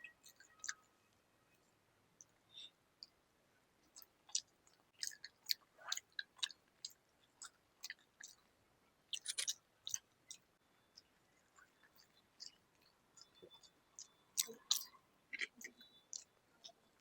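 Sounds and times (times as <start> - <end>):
person chewing with wet smacks: 0.2 - 0.8, 3.8 - 8.5, 9.1 - 17.0.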